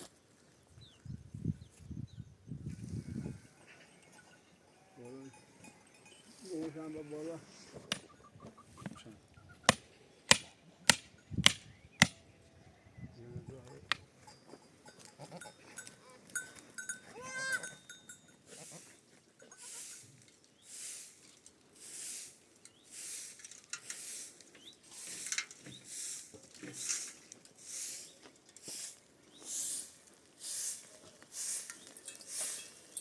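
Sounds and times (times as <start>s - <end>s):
goat bleating: 17.1s - 17.8s.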